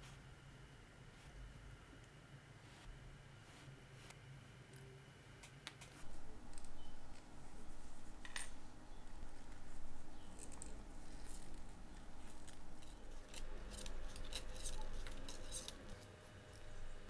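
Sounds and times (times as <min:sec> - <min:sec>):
rubbing and scraping metal spring: 0:10.3 - 0:16.2.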